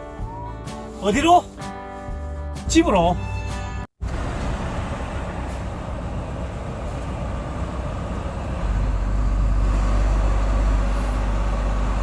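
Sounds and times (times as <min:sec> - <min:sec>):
truck engine and tyre noise: 0:03.6 - 0:12.0.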